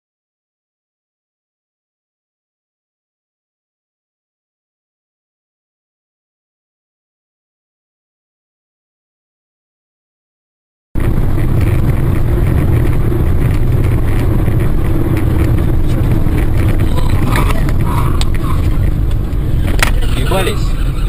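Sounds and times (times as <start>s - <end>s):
car engine and road noise: 11.0s - 21.0s.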